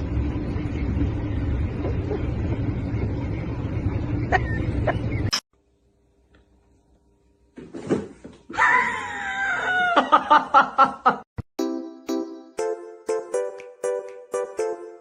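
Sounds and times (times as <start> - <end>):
steady low rumble: 0.0 - 5.2.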